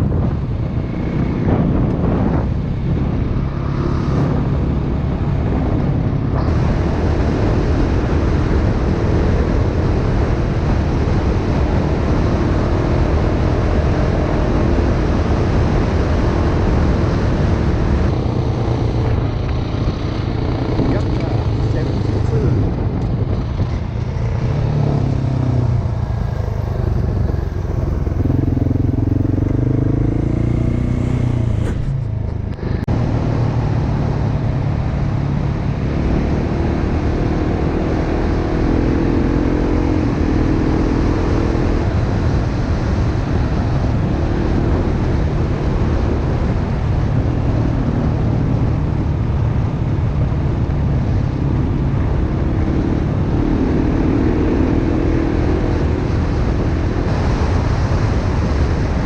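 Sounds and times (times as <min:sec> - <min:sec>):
wind and road noise: 0:00.0 - 0:59.0
dirt bike engine running: 0:17.5 - 0:32.8.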